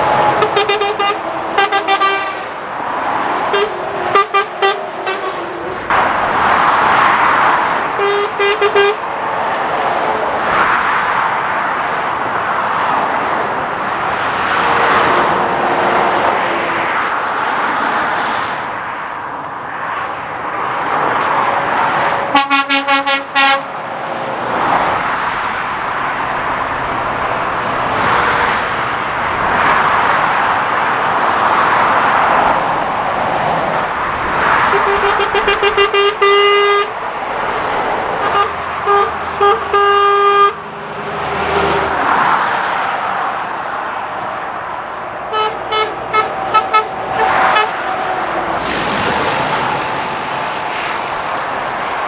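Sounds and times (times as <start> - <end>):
vehicles passing at speed: 0.0 - 52.0
vehicle horn tooting: 0.2 - 2.5, 3.4 - 5.6, 8.0 - 9.0, 22.3 - 23.7, 34.6 - 37.0, 38.2 - 40.6, 45.3 - 47.8.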